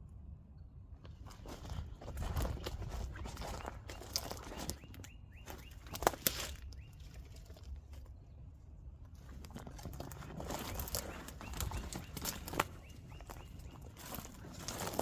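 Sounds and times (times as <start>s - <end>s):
faint bird chirps: 3.3s - 7.3s, 10.5s - 14.4s.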